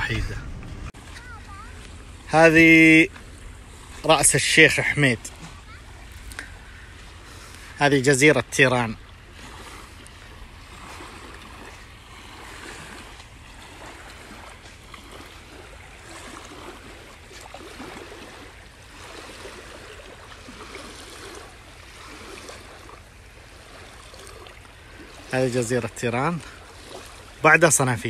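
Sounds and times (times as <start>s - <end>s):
low rumble: 0.0s - 4.1s
sea waves washing on shore: 0.0s - 28.0s.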